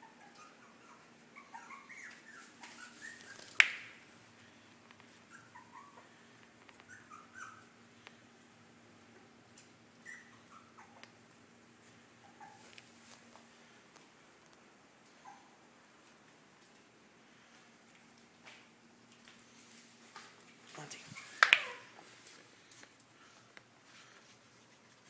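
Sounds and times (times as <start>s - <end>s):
puppies squeaking and whimpering: 0.0s - 4.0s, 5.2s - 6.2s, 6.8s - 7.8s, 10.0s - 11.1s, 12.2s - 12.7s, 21.1s - 22.2s.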